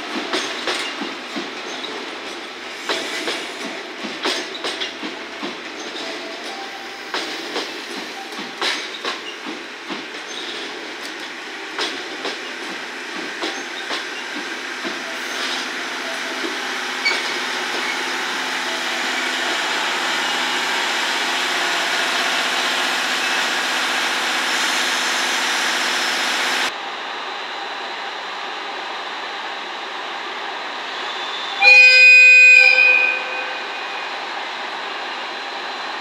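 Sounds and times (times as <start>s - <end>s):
train wheels clicking over rail joints: 0.0s - 26.7s.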